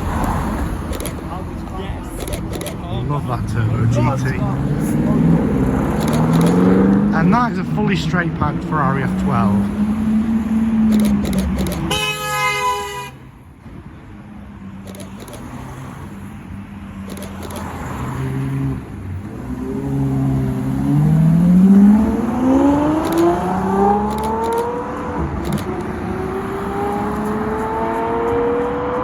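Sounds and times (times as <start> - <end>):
sports car engine revving: 3.4 - 7.3, 17.3 - 29.0
car accelerating hard: 3.6 - 7.4, 17.6 - 29.0.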